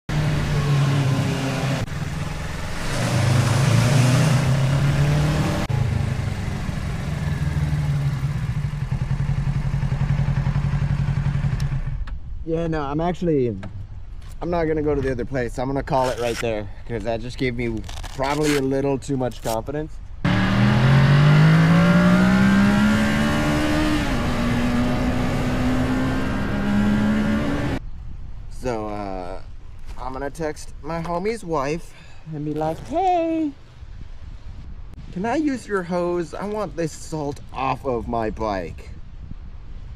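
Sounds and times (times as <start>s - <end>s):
motorcycle engine accelerating: 0.1s - 12.1s, 20.2s - 27.8s
motorcycle engine running: 5.7s - 12.0s
wind noise: 21.6s - 31.6s, 32.4s - 39.9s.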